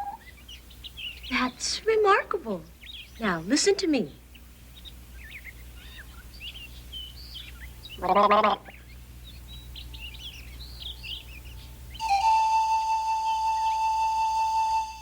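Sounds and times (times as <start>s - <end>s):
songbird chirping: 0.0s - 15.0s
high whistled note: 12.0s - 15.0s.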